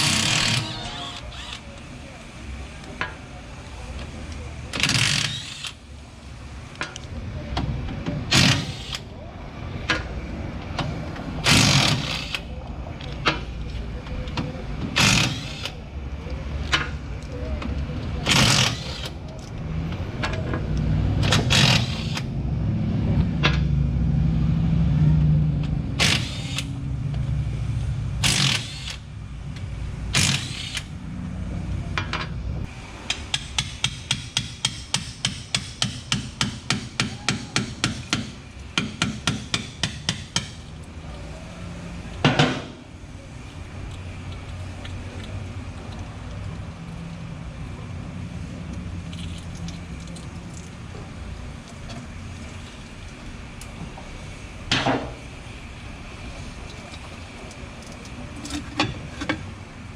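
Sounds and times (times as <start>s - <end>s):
ratchet clicking: 4.7s - 5.8s, 15.0s - 15.8s, 26.0s - 26.7s, 28.2s - 29.0s, 30.1s - 30.9s.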